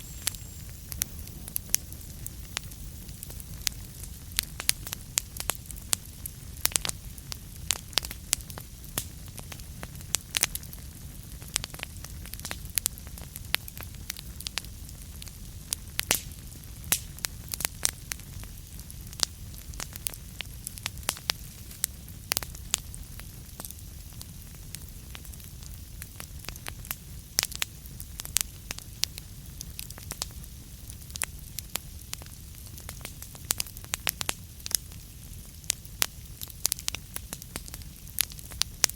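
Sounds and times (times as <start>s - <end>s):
steady low rumble: 0.0s - 5.9s
burning wood crackling: 0.0s - 38.9s.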